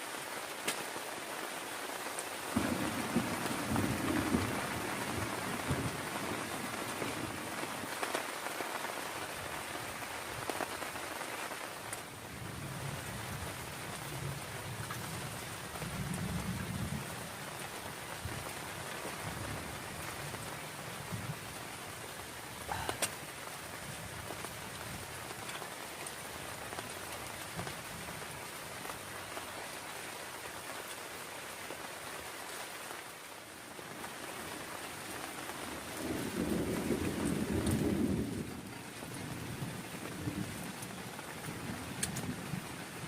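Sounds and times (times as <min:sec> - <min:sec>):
heavy rain falling: 0:00.0 - 0:43.0
distant thunder rumbling: 0:02.5 - 0:07.9, 0:22.5 - 0:23.1, 0:35.6 - 0:43.0.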